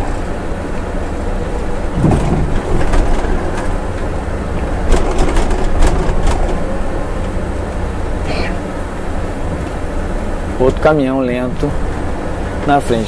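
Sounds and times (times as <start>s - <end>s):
bus engine droning: 0.0s - 13.0s
road noise: 0.0s - 13.0s
sharp clicks and rattles: 1.9s - 7.4s.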